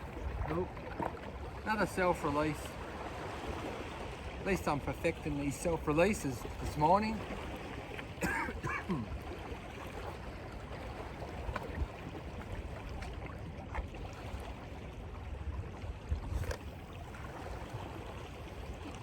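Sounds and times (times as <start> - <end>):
surf on rocks: 0.0 - 9.2
wind rumble on microphone: 9.2 - 19.0.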